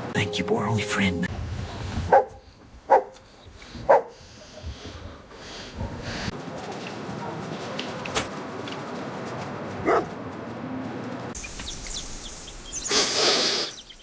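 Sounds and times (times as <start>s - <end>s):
bird chirps: 11.4s - 14.0s.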